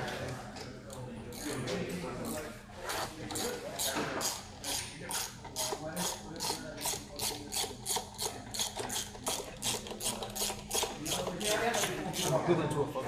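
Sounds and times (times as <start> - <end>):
ratchet wrench clicking: 3.4 - 12.3.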